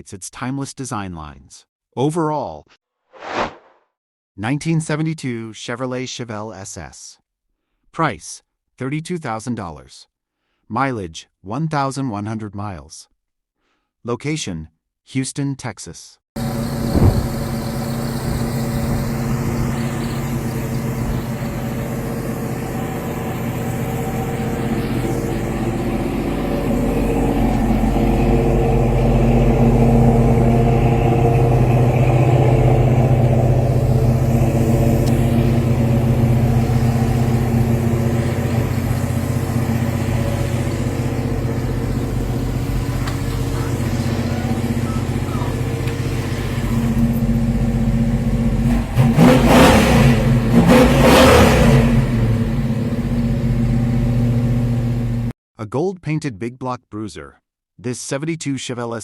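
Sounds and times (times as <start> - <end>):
vee eight engine running: 16.4 - 55.3.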